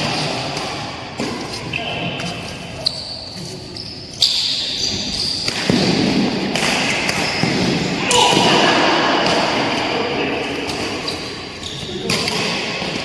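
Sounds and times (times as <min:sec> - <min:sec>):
racket striking shuttlecock: 0:05.4 - 0:09.9
loud impact: 0:08.0 - 0:10.4.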